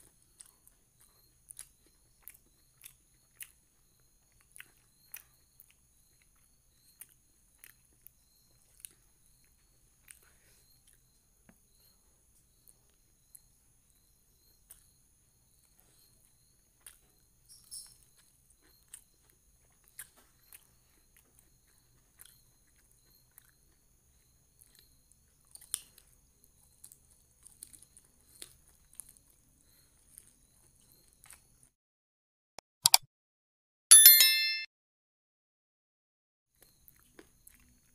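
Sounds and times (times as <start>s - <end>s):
chewing and mouth smacks: 0.0s - 11.1s, 14.7s - 14.9s, 16.8s - 23.8s, 25.4s - 29.4s
sharp click sound effect: 32.6s - 33.1s, 33.9s - 34.7s
faint high-pitched tones: 33.9s - 34.7s.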